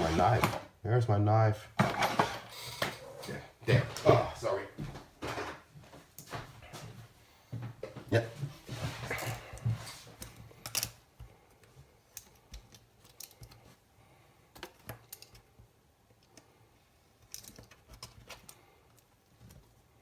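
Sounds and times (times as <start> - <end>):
plastic parts clicking and tapping: 10.2 - 13.7, 14.5 - 16.5, 17.2 - 19.7.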